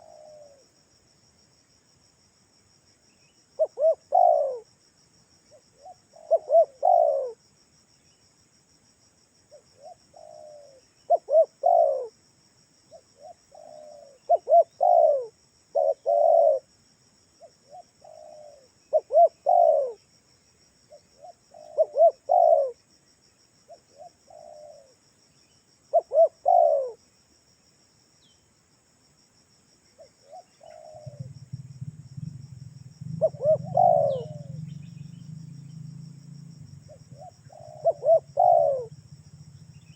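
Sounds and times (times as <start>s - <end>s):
dove cooing: 0.0s - 0.6s, 3.6s - 4.7s, 5.8s - 7.4s, 9.8s - 12.2s, 13.2s - 16.7s, 17.4s - 20.0s, 20.9s - 22.8s, 23.7s - 25.0s, 25.9s - 27.0s, 30.0s - 35.9s, 36.6s - 39.9s
high insect trill: 0.0s - 39.9s
low hum: 31.1s - 39.9s.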